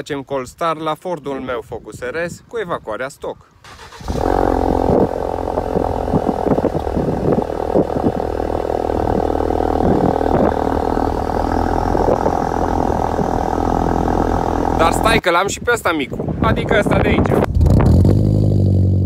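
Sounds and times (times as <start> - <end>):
car engine idling: 3.8 - 15.2.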